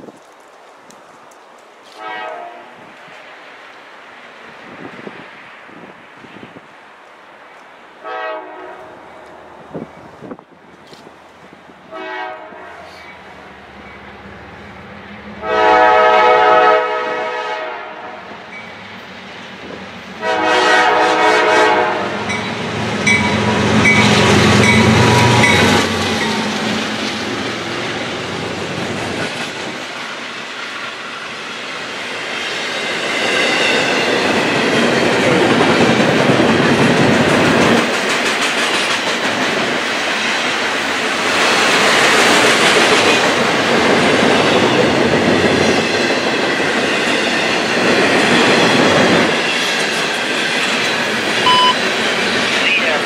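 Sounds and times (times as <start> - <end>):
train rumbling past: 0.0 - 53.0
locomotive air horn blasts: 1.9 - 2.8, 8.0 - 8.9, 11.9 - 13.0, 15.4 - 18.2, 20.2 - 22.4.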